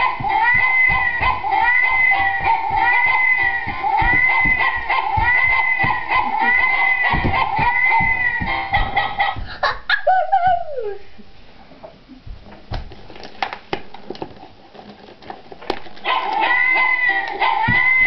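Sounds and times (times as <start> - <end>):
repeating music: 0.0 - 9.5.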